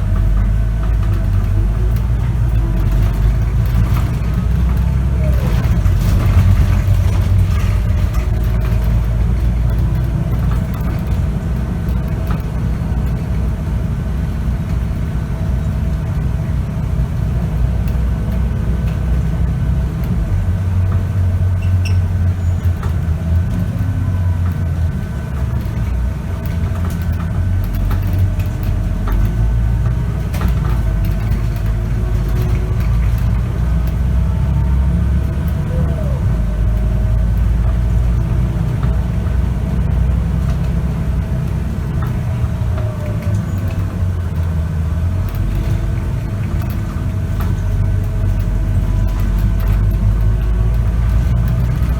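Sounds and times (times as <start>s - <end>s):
bus diesel engine running: 0.0s - 51.9s.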